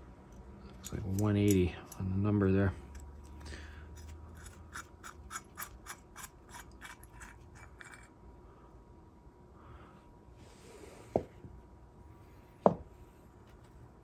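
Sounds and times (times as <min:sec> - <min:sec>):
small metal parts clicking and scraping: 0:00.3 - 0:02.2, 0:02.8 - 0:08.2.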